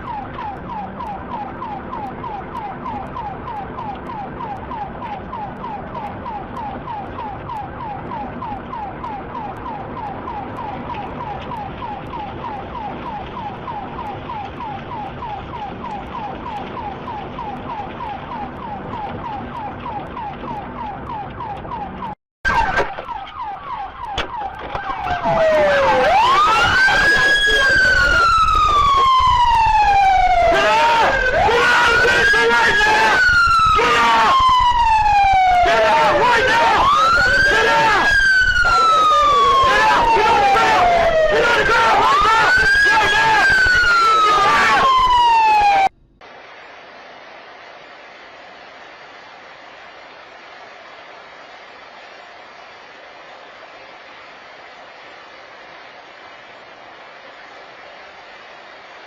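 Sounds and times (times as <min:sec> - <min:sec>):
emergency siren yelping and wailing: 0:00.0 - 0:46.0.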